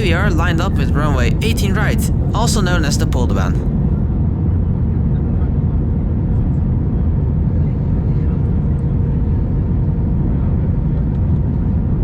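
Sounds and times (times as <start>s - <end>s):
aircraft cabin rumble: 0.0s - 4.0s.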